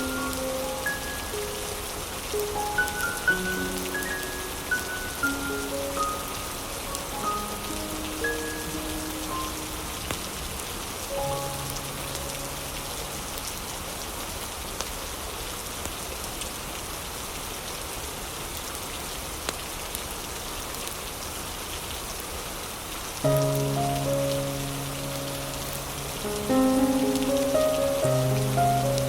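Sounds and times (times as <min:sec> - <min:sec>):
steady rain: 0:00.0 - 0:29.0
fireplace crackles: 0:23.2 - 0:29.0
soft held instrumental notes: 0:23.2 - 0:29.0.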